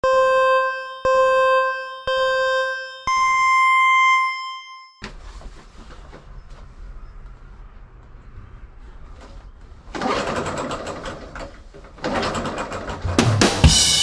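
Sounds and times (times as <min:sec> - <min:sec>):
electronic countdown beeps: 0:00.0 - 0:05.0.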